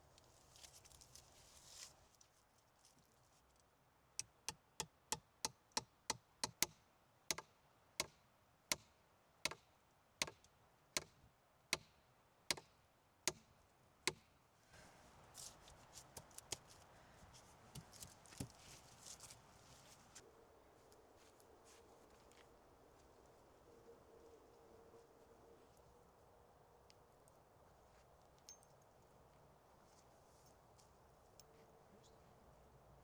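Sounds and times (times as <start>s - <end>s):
rustling and light crackling: 0.0s - 3.7s, 14.6s - 33.0s.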